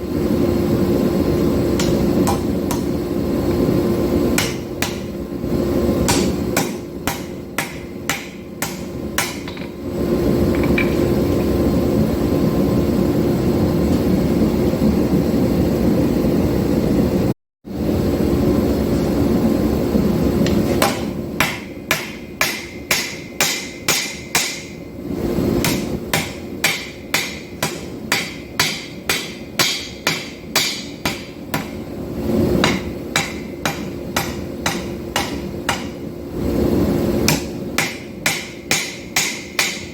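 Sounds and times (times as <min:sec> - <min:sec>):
hammer striking hot steel on anvil: 0:01.7 - 0:03.0, 0:04.3 - 0:05.2, 0:06.0 - 0:09.8, 0:10.5 - 0:11.4, 0:20.4 - 0:24.9, 0:25.6 - 0:31.9, 0:32.6 - 0:36.1, 0:37.2 - 0:39.9.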